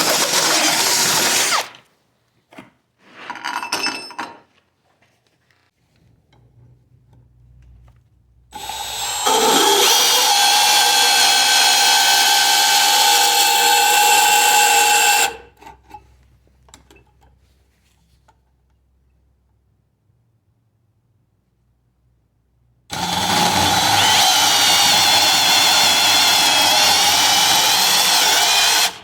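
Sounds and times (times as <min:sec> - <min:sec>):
power tool whining: 0:08.6 - 0:15.4, 0:22.9 - 0:29.0.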